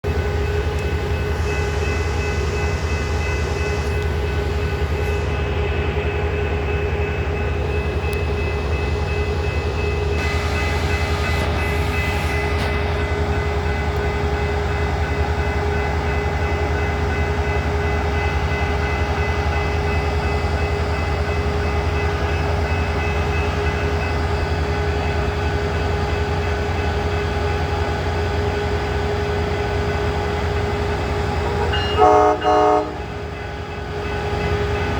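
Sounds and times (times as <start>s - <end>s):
train rumbling: 0.0s - 34.9s.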